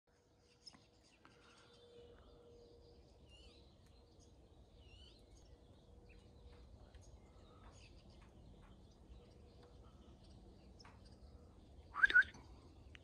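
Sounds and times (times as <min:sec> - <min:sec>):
bird chirps: 0:00.4 - 0:13.0
short whistles: 0:12.0 - 0:12.4.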